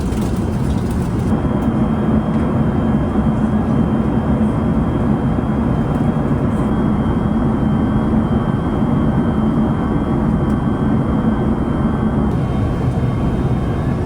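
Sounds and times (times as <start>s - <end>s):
airliner cabin noise: 0.0s - 14.0s
low hum: 12.2s - 14.0s
faint high whine: 12.3s - 14.0s.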